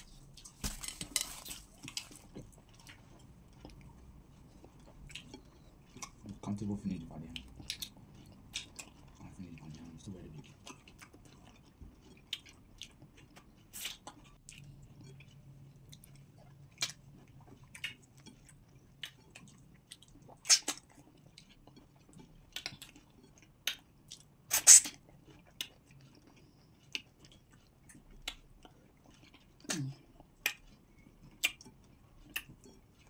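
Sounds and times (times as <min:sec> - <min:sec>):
wet mouth clicks and smacks: 0:20.4 - 0:20.9, 0:31.4 - 0:32.6.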